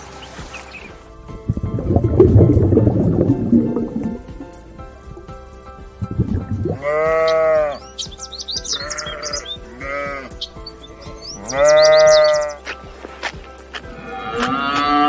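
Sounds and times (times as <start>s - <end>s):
high-pitched chirps: 6.1s - 12.8s
sheep bleating: 6.7s - 7.8s, 8.6s - 10.5s, 11.4s - 12.6s, 13.9s - 15.0s.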